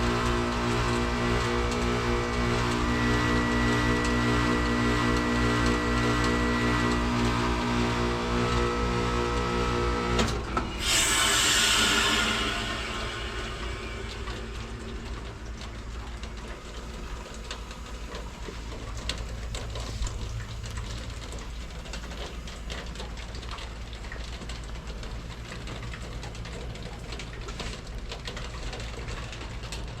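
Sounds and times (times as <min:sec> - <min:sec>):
heat pump humming: 0:00.0 - 0:30.0
hiss: 0:10.8 - 0:15.1.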